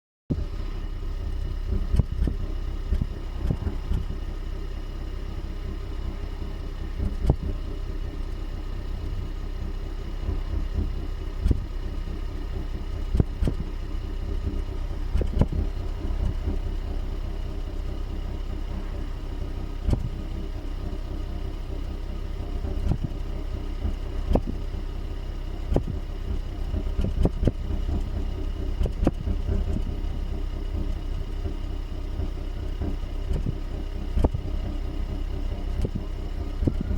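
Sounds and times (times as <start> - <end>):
car engine droning: 0.3 - 36.9
engine misfire thumps: 1.7 - 4.2, 12.9 - 17.1, 19.8 - 20.3, 25.7 - 30.0.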